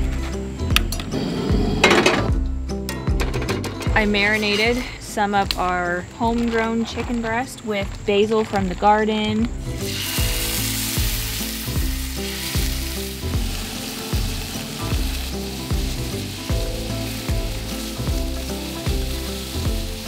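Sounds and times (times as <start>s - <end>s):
background music with a beat: 0.0s - 6.5s, 9.5s - 20.0s
chicken sizzling in a skillet: 9.8s - 20.0s.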